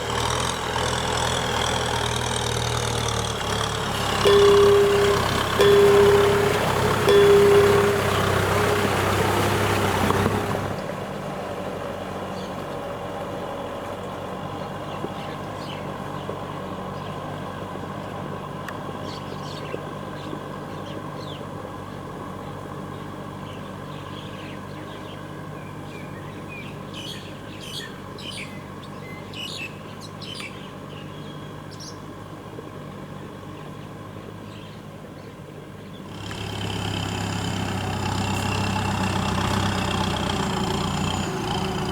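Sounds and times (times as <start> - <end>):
tractor diesel engine running: 0.0 - 41.9
birds chirping: 1.4 - 10.8.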